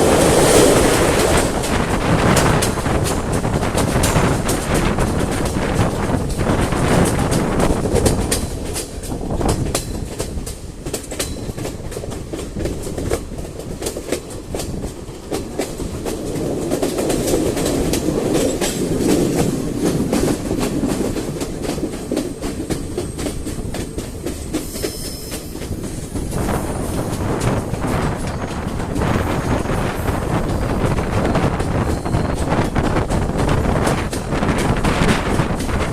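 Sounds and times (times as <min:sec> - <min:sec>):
train rumbling: 0:00.0 - 0:35.9
wheels clicking over rail joints: 0:00.0 - 0:35.9.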